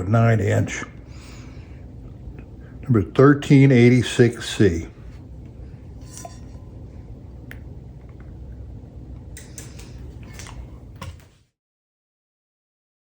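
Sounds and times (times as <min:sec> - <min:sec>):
low room hum: 0:00.0 - 0:11.6.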